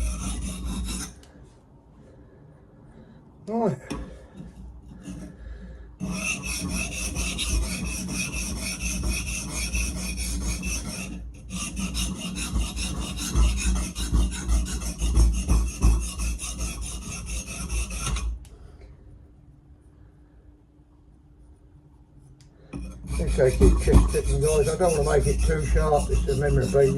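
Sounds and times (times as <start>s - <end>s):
cleaver blade scraping on sharpening plate: 6.0s - 18.3s, 22.8s - 26.9s.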